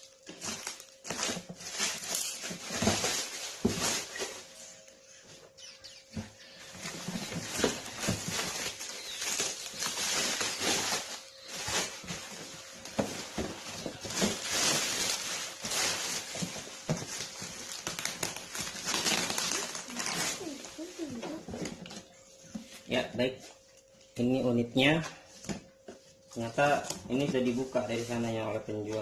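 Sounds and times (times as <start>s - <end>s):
cardboard packaging rustling: 0.0s - 22.9s.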